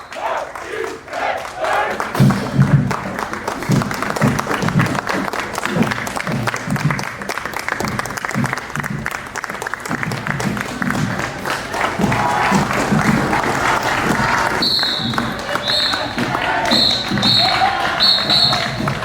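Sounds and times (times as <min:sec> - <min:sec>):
rapid drumming: 0:01.7 - 0:19.0
marching band playing: 0:09.8 - 0:19.0.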